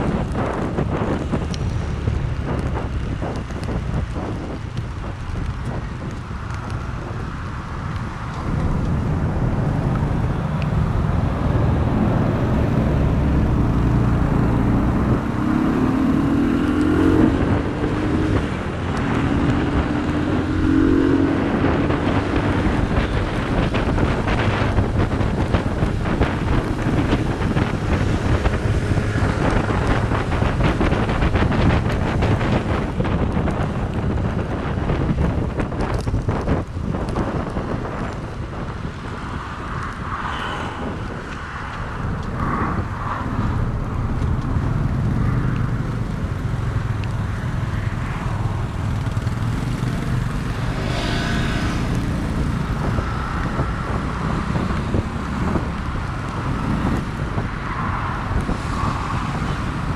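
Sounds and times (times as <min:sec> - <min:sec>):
traffic noise: 0:00.0 - 0:59.9
vehicle accelerating past: 0:09.6 - 0:22.9, 0:48.6 - 0:57.0.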